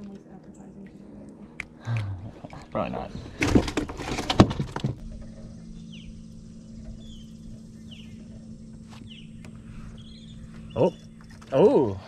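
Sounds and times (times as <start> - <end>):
steady low hum: 0.0 - 12.0
bird chirping: 5.2 - 11.8.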